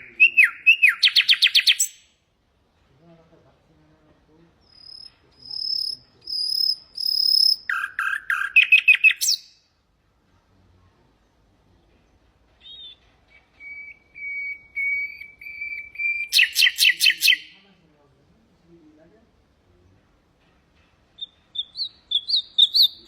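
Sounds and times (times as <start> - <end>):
nightingale singing: 0.0 - 2.2, 4.6 - 9.7, 11.2 - 17.6, 21.1 - 23.0.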